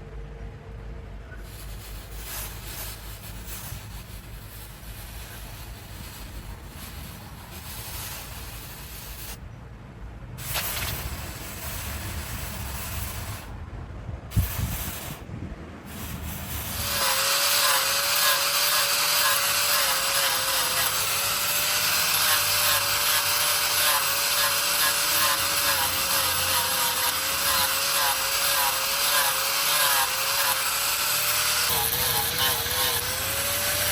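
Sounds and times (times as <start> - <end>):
low rumbling noise: 0.0 - 17.0
power tool whining: 1.4 - 9.4, 10.4 - 13.5, 14.3 - 15.3, 15.9 - 33.9.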